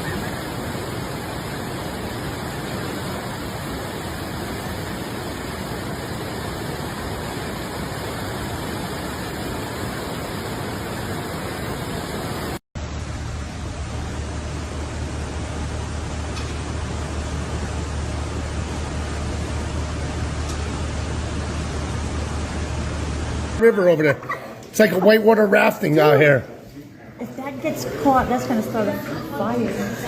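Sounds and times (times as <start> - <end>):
deep hum: 12.8 - 23.6.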